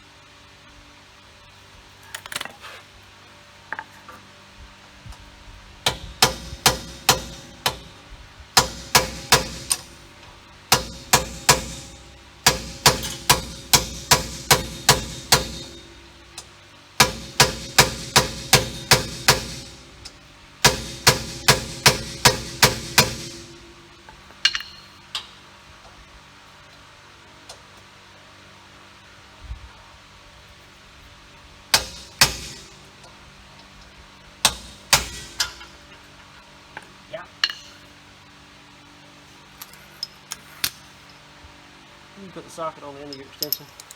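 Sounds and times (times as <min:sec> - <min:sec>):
hammer striking metal with ringing: 0:05.9 - 0:08.0, 0:08.6 - 0:10.0, 0:10.7 - 0:25.0, 0:31.8 - 0:32.9, 0:34.4 - 0:35.8.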